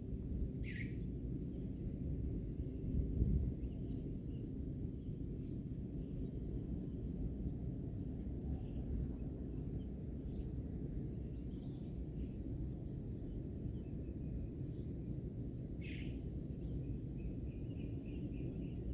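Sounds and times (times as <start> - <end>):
insects trilling: 0.1 - 2.8, 7.2 - 18.9.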